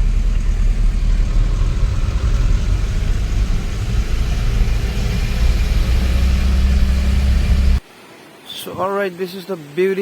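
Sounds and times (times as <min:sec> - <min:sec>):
road noise: 0:00.0 - 0:07.8
scooter engine running: 0:00.0 - 0:07.8
wind buffeting microphone: 0:00.0 - 0:07.8.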